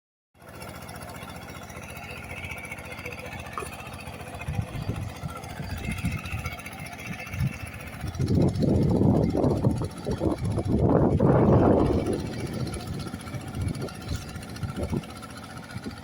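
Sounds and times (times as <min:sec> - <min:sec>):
diesel engine running: 0:00.4 - 0:16.0
wind buffeting microphone: 0:04.4 - 0:15.2.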